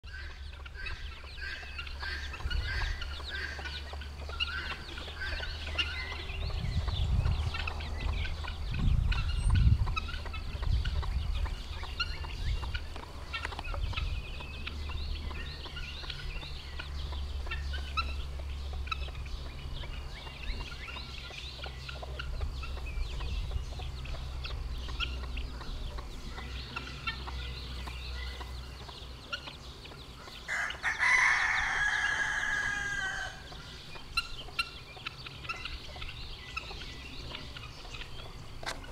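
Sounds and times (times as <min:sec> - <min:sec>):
chicks peeping: 0:00.0 - 0:38.9
hen clucking: 0:00.0 - 0:38.9
steady low rumble: 0:00.1 - 0:30.4.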